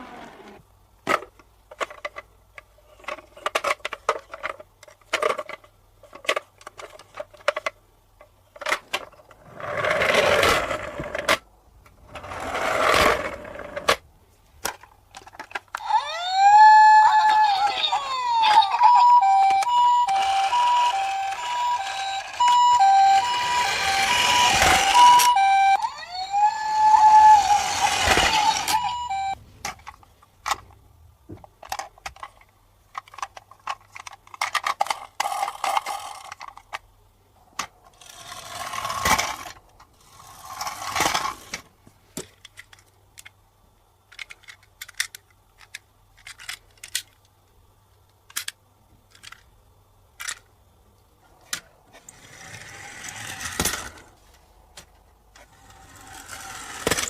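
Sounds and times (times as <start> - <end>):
toy ambulance two-tone siren: 15.8 - 29.4.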